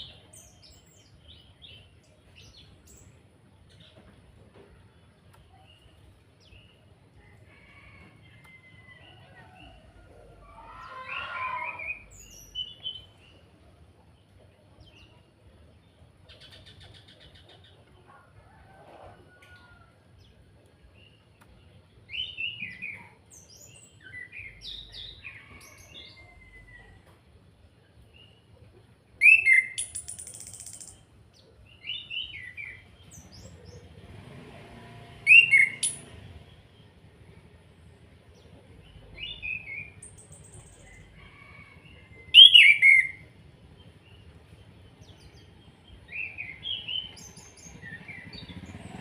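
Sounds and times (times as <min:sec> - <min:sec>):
thrush whistled song: 0:29.2 - 0:31.0, 0:35.2 - 0:36.1, 0:42.4 - 0:43.2
bird rattling call: 0:29.8 - 0:31.0.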